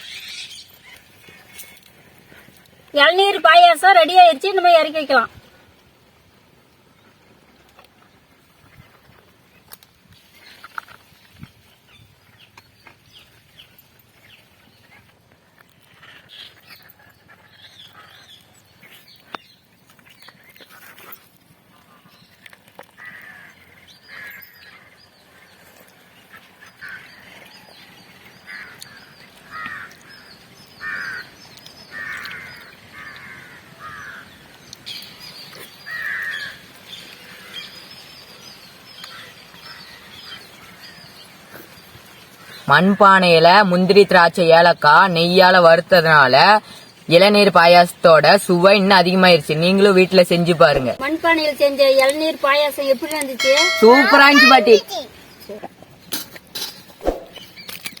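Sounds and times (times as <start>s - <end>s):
birds calling: 0.0s - 1.8s, 26.2s - 58.0s.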